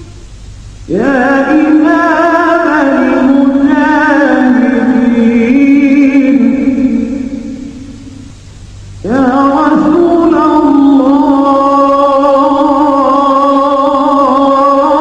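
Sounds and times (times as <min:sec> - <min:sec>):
person singing with vibrato: 0:00.9 - 0:08.3, 0:09.0 - 0:15.0.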